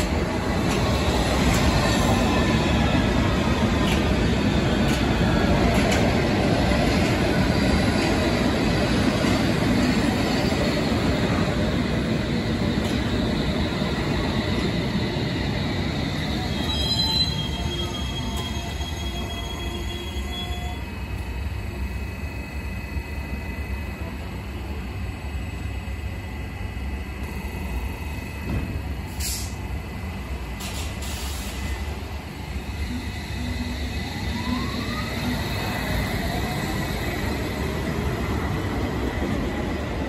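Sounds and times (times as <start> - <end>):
train wheels rumbling on rail: 0.0 - 40.0
wheel squeal: 16.4 - 20.8.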